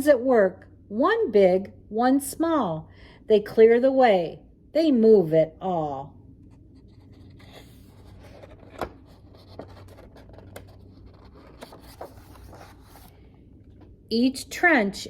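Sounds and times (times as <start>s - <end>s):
book pages rustling: 6.8s - 13.9s.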